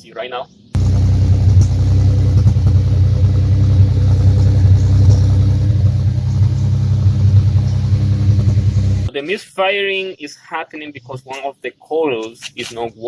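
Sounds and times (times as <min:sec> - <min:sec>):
engine misfiring with exhaust pops: 0:00.8 - 0:09.1.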